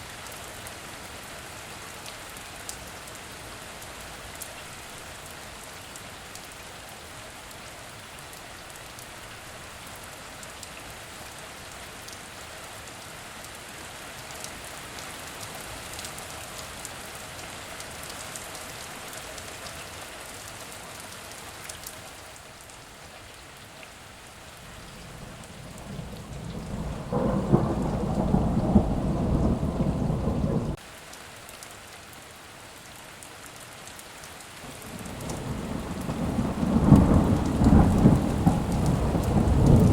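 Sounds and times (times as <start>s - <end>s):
heavy rain falling: 0.0s - 39.9s
thunder rumbling: 24.8s - 30.8s, 35.0s - 39.9s.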